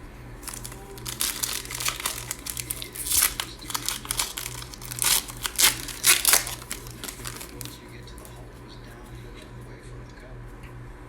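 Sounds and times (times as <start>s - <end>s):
plastic packaging crinkling: 0.4s - 8.6s.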